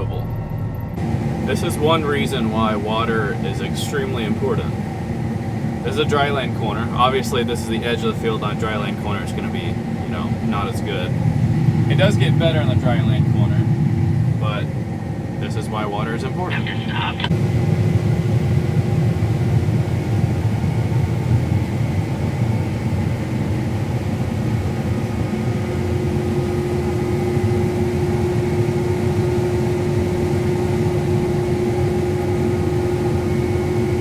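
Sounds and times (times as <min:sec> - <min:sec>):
combine harvester running: 0:00.0 - 0:17.4.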